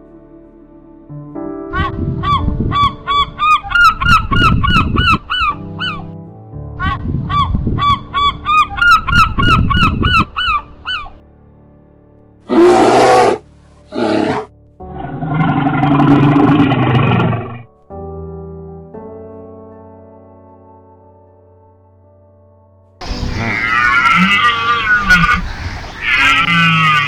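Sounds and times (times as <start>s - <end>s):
animal honking calls: 1.8s - 6.1s, 6.8s - 11.1s, 12.5s - 17.6s, 23.0s - 27.0s.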